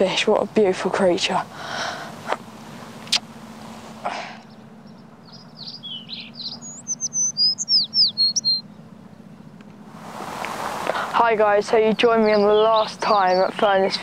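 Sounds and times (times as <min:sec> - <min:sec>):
songbird chirping and whistling: 0:04.4 - 0:09.5, 0:12.2 - 0:14.0.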